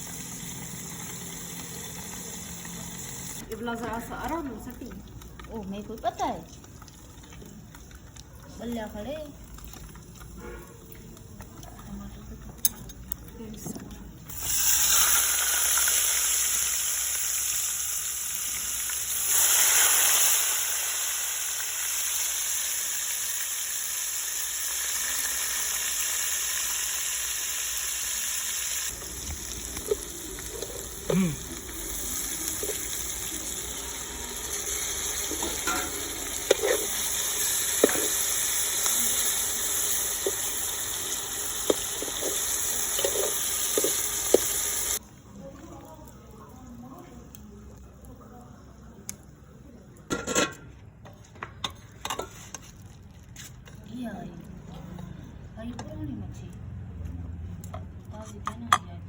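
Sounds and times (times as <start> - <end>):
fish sizzling in hot oil: 0.0 - 12.3, 14.3 - 45.0.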